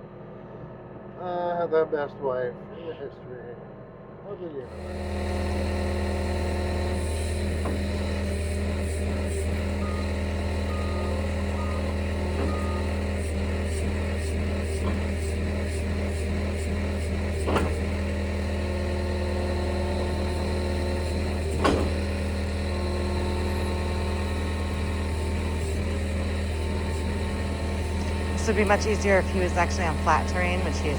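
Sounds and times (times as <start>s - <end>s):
diesel engine running: 4.7s - 30.9s
backup alarm beeps: 9.7s - 13.1s, 27.9s - 30.9s.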